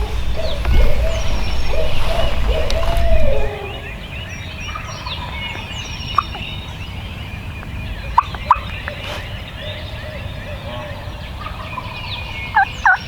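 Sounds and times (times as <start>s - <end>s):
turkey gobbling: 0.0s - 3.9s
short sharp bird calls: 0.0s - 4.0s
songbirds chirping: 0.0s - 13.0s.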